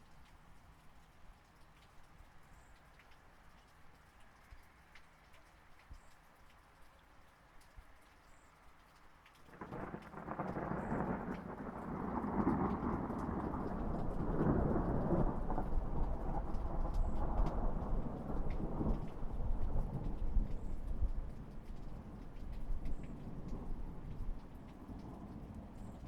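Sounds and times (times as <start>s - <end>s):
light rain pattering: 0.0s - 26.0s
rolling thunder rumble: 9.6s - 26.0s.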